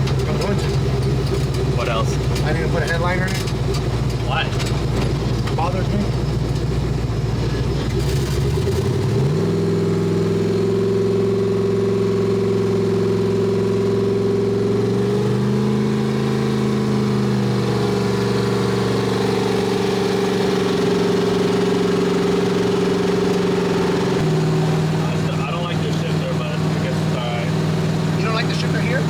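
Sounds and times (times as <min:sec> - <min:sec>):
truck engine drone from inside cab: 0:00.0 - 0:29.0.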